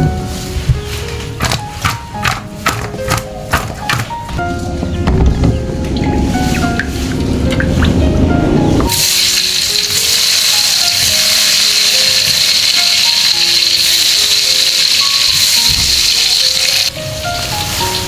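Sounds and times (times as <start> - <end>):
background music: 0.0 - 18.0
food sizzling in hot oil: 8.9 - 18.0.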